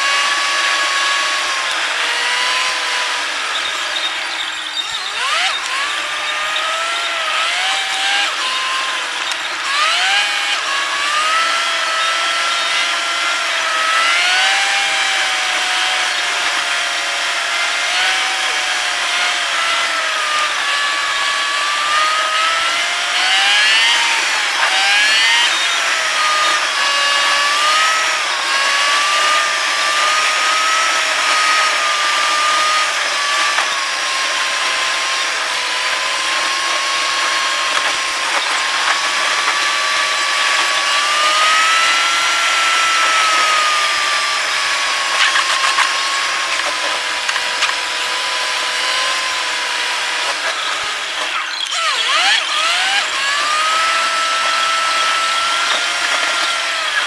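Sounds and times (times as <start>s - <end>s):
car engine and drivetrain whine: 0.0s - 57.0s.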